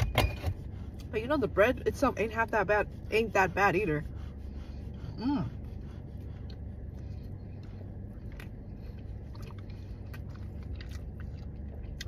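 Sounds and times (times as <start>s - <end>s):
car cabin hum: 0.0s - 12.0s
person chewing: 4.9s - 12.0s.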